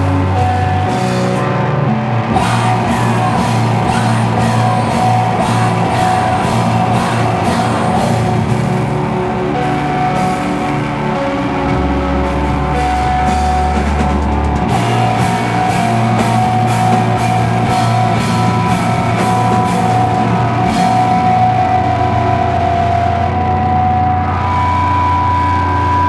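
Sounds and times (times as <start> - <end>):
distorted electric guitar chords: 0.0 - 26.0
drum beat: 2.3 - 21.6.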